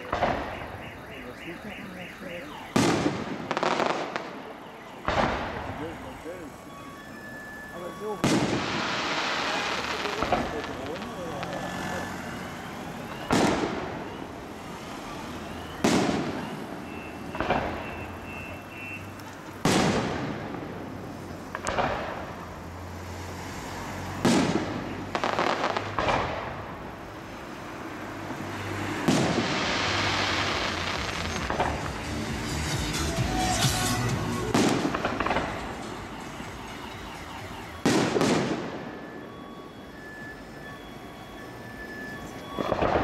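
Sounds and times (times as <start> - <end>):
fireworks bangs echoing: 0.0 - 6.6, 7.8 - 11.8, 12.8 - 15.0, 15.8 - 22.4, 24.1 - 27.0, 28.9 - 39.2, 42.4 - 43.0
fireworks crackle: 2.2 - 6.6, 7.8 - 22.4, 24.2 - 26.8, 28.9 - 39.2, 41.9 - 43.0.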